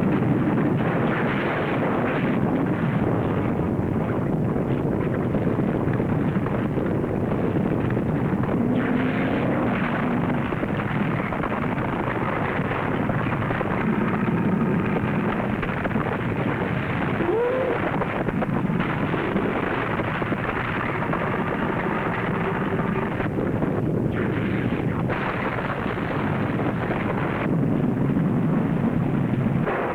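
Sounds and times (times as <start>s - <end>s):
volcanic eruption rumbling: 0.0s - 29.9s
short pitched cry: 17.2s - 18.0s.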